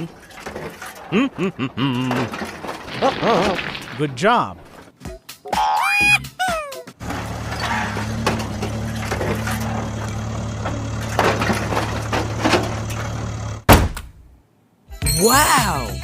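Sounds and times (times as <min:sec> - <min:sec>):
crackling and crunching: 0:02.7 - 0:04.1.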